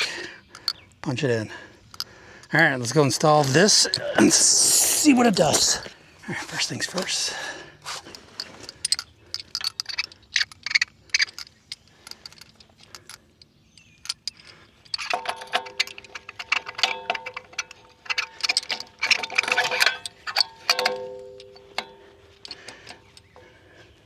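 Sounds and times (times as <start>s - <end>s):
metal clicking and clinking: 0.0s - 0.9s, 1.9s - 5.9s, 8.0s - 23.7s
steady ringing tone: 19.8s - 22.6s.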